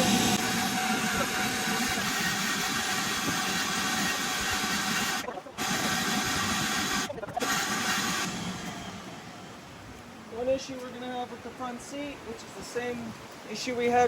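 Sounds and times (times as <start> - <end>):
machine whirring with hiss: 0.0 - 9.1.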